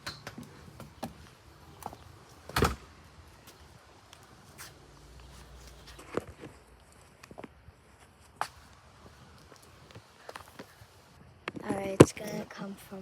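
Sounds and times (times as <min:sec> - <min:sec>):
door opening and shutting: 0:00.0 - 0:01.2, 0:02.4 - 0:02.9.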